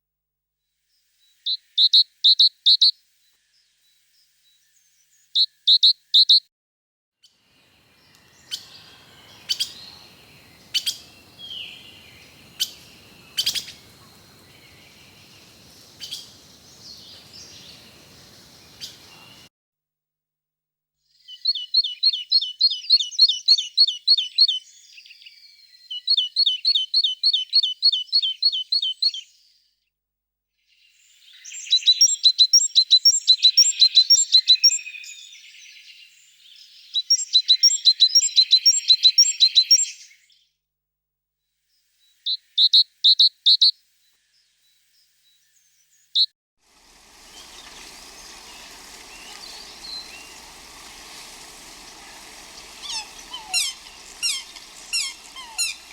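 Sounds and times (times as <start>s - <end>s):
steady outdoor hiss: 7.5s - 19.5s, 46.6s - 55.9s
small bird singing: 7.6s - 19.5s, 30.8s - 40.3s, 44.3s - 55.9s.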